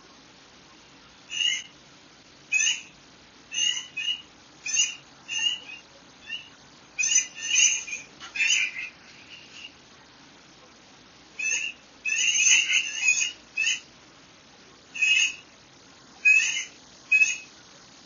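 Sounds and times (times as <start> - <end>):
faint steady hiss: 0.0 - 18.0
bird chirping: 1.3 - 1.8, 2.5 - 9.8, 11.4 - 13.9, 14.9 - 15.6, 16.2 - 17.6.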